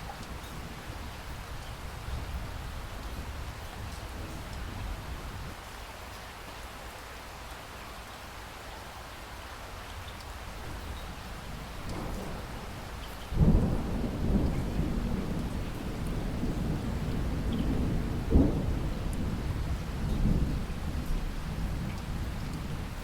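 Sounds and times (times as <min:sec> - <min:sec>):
rain hissing: 0:09.9 - 0:23.0
thunder rolling: 0:11.8 - 0:23.0.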